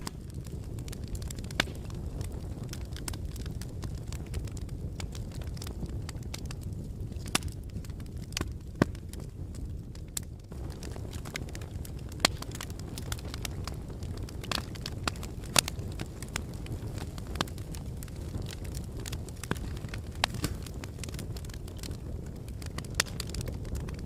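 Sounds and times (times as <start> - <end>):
fire crackles and pops: 0.0 - 24.0
low rush of flames: 0.0 - 24.0.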